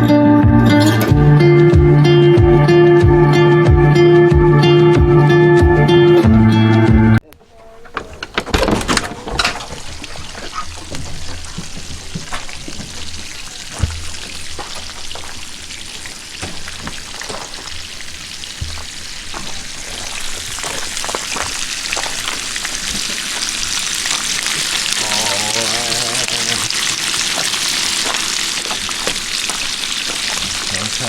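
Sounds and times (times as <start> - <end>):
food sizzling in grease: 9.6 - 31.0.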